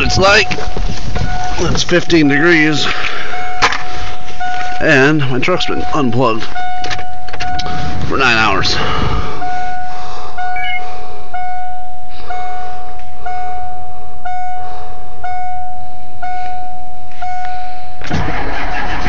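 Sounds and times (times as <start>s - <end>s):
dashboard warning chime dinging: 0.0s - 17.6s
diesel engine cranking on starter: 18.0s - 19.0s.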